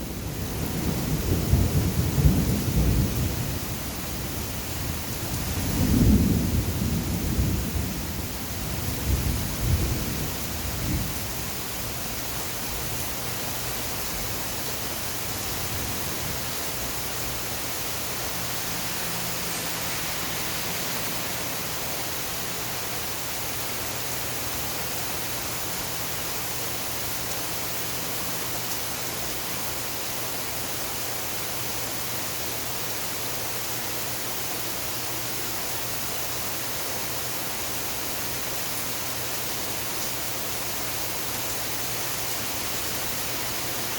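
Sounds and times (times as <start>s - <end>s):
rain falling: 0.0s - 43.9s
thunder rumble: 0.1s - 11.6s, 15.5s - 23.3s.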